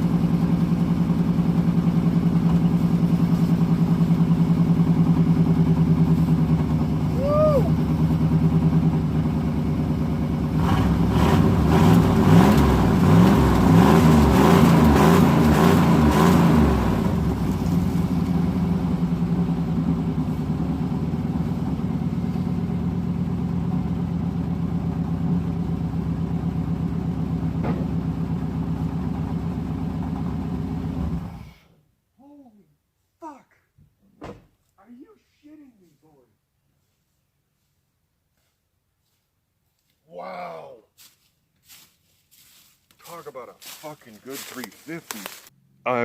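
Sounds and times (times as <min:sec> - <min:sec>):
truck engine revving and idling: 0:00.0 - 0:31.5.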